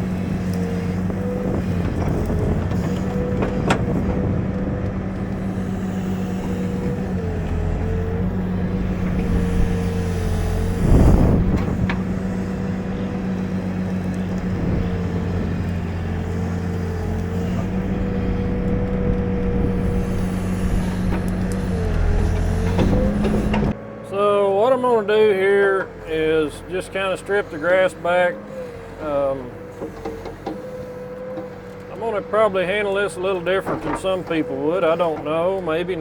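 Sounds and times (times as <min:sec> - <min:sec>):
diesel engine running: 0:00.0 - 0:36.0
hydraulic whine: 0:00.0 - 0:36.0.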